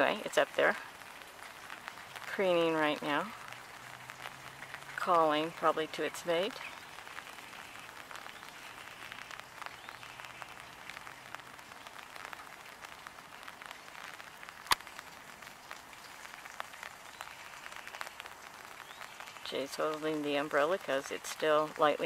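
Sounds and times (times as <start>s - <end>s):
rain pattering on umbrella: 0.0s - 22.0s.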